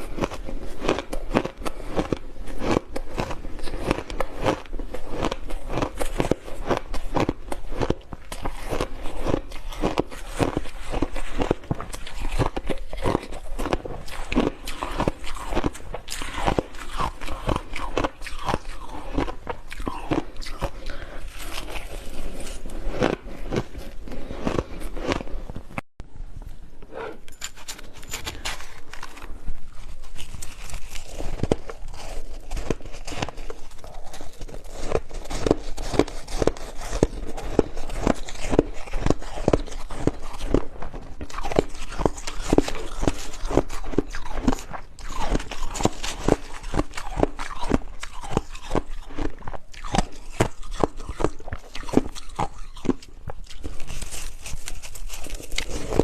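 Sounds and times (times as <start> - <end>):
ice crunching being chewed: 0.0 - 25.8, 27.1 - 56.0.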